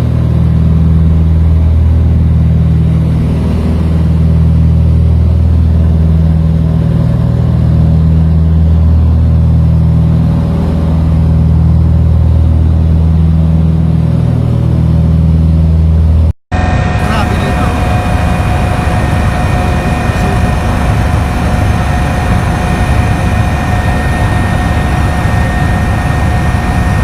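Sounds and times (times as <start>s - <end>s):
aircraft engine drone: 0.0s - 27.0s.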